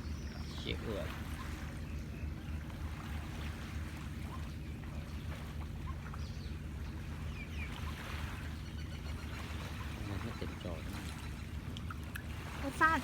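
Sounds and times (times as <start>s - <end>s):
sea waves washing on shore: 9.3s - 13.0s.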